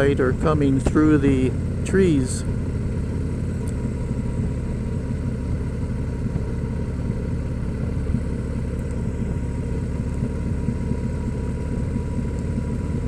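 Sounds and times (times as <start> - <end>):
motorcycle engine rumbling: 0.0 - 13.0
road noise: 0.0 - 13.0.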